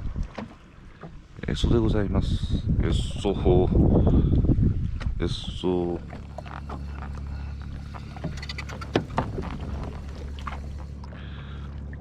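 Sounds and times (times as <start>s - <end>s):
jet ski engine idling: 3.8s - 12.0s.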